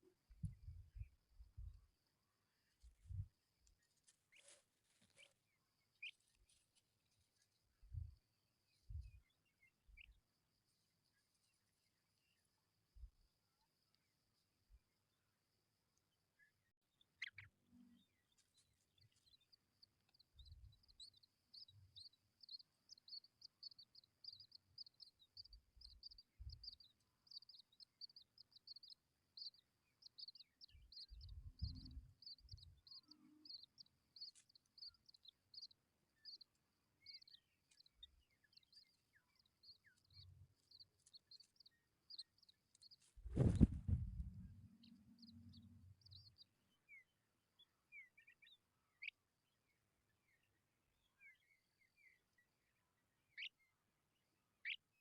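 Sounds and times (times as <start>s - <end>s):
faint low thumps: 43.2s - 44.6s.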